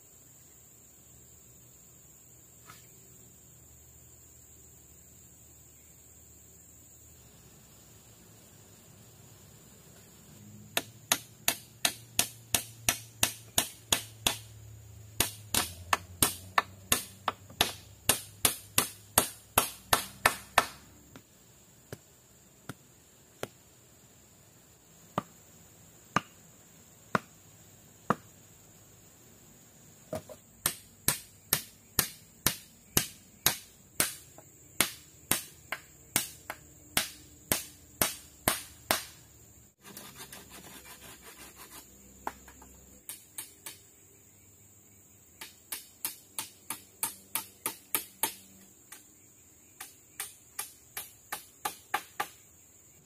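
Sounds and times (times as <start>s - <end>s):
tool striking wood: 10.7s - 14.5s, 15.2s - 21.2s.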